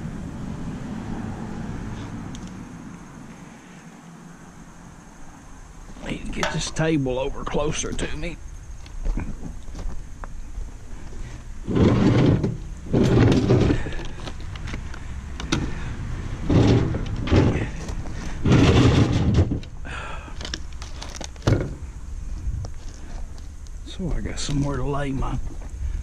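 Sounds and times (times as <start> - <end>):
table scraping across floor: 11.6 - 13.9, 16.4 - 17.7, 18.4 - 19.6.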